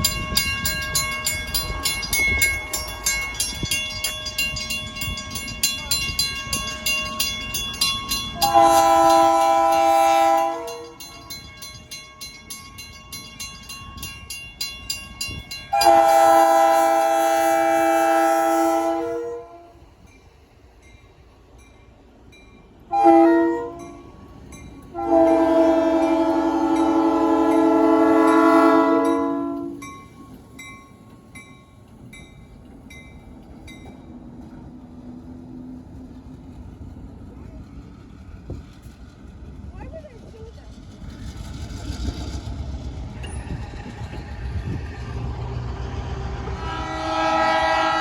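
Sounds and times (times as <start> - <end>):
locomotive air horn: 8.4 - 11.0, 15.7 - 19.8, 22.9 - 24.0, 24.9 - 29.8, 46.4 - 48.0.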